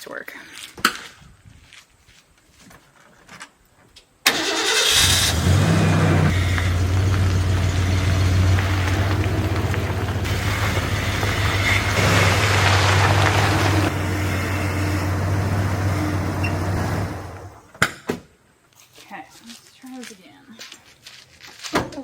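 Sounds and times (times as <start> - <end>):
car engine starting and idling: 4.3 - 17.7.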